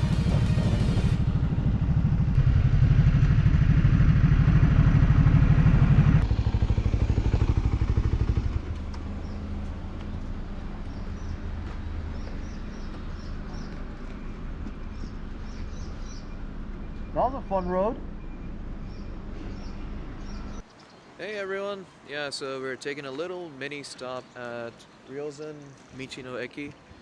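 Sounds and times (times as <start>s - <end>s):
motorcycle engine: 0.0s - 20.6s
small birds chirping: 7.9s - 21.2s.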